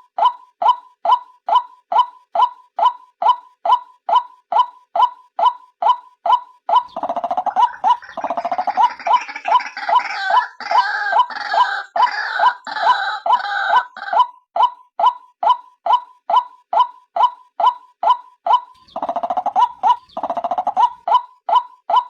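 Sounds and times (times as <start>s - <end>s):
rattling croaking bird chorus: 6.8s - 13.5s, 18.8s - 21.0s.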